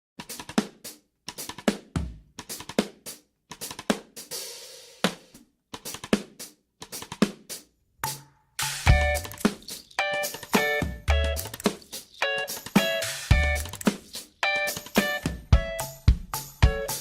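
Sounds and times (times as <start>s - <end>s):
snare kick and hi-hat hits: 0.2s - 9.8s, 12.8s - 14.3s, 14.9s - 17.0s.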